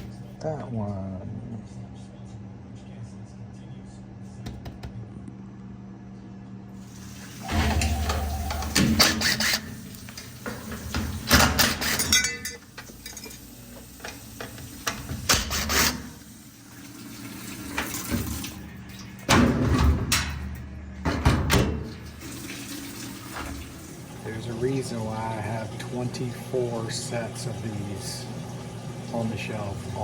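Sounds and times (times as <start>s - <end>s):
washing machine running: 0.0s - 0.6s, 6.7s - 30.0s.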